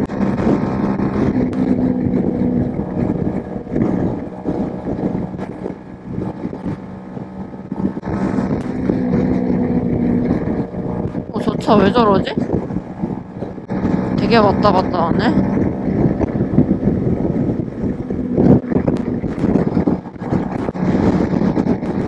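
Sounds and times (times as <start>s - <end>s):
motorcycle engine running: 0.0s - 22.0s
wind rushing over microphone: 0.0s - 22.0s.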